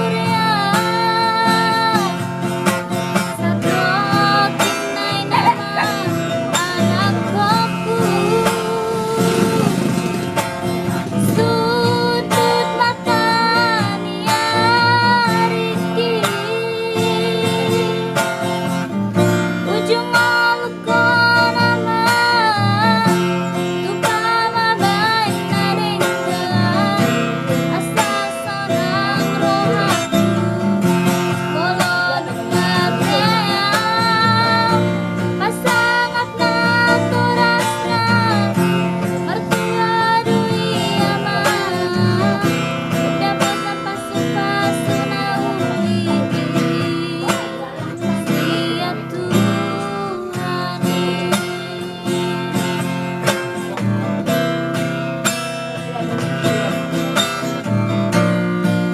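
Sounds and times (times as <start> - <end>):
strummed acoustic guitar: 0.0 - 58.9
person singing wavering melody: 3.4 - 9.9, 31.5 - 34.9.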